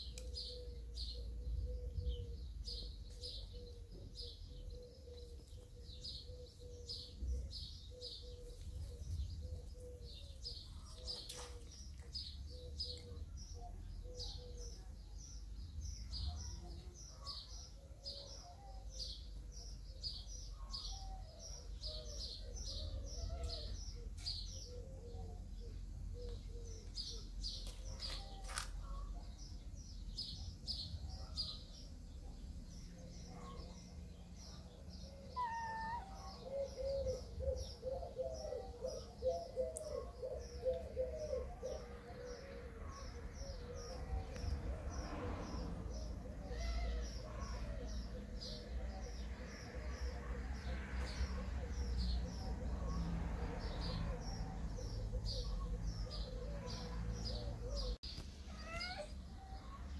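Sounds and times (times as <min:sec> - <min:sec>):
small birds chirping: 0:00.0 - 0:59.9
lower wavering bird call: 0:35.4 - 0:36.2.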